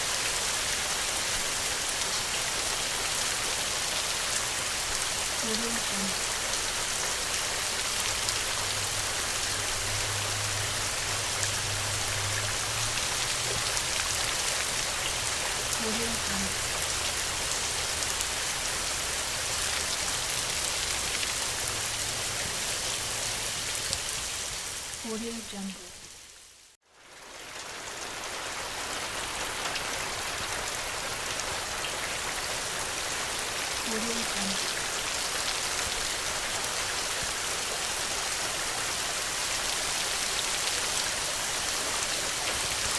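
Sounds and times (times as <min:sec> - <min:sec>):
steady rain: 0:00.0 - 0:42.9.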